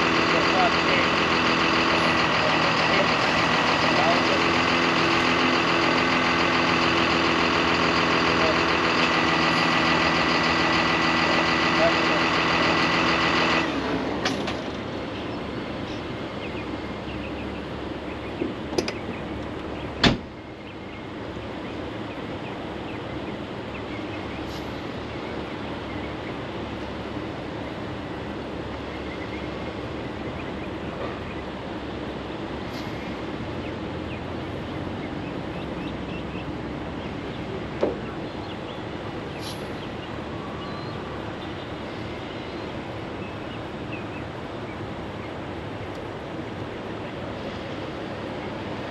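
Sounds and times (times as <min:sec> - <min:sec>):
diesel engine droning: 0:00.0 - 0:48.9.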